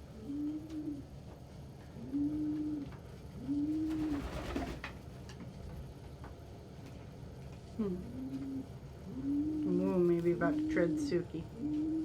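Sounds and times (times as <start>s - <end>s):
pigeon cooing: 0.1s - 1.1s, 2.0s - 4.8s, 7.8s - 12.0s.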